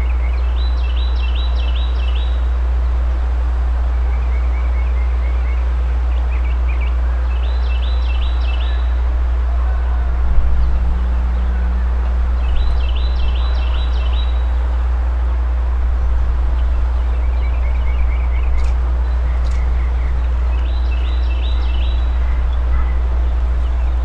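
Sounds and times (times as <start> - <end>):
birds chirping: 5.5 - 24.0
low rumble: 8.1 - 24.0.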